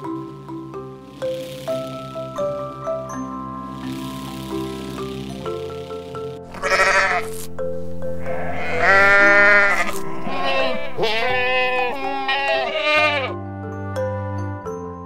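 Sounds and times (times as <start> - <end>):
background music: 0.0 - 15.0
sheep bleating: 6.5 - 7.5, 8.2 - 13.4.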